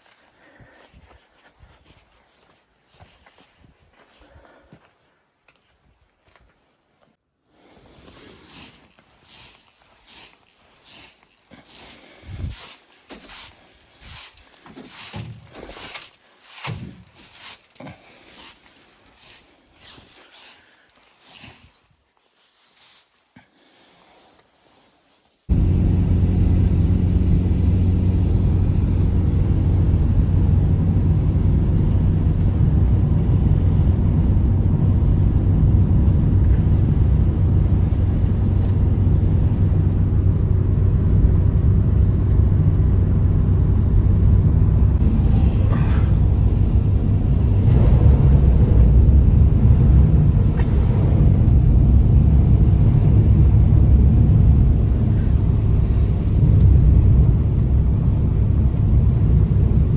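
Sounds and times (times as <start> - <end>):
loud low rumble: 25.5 - 59.9.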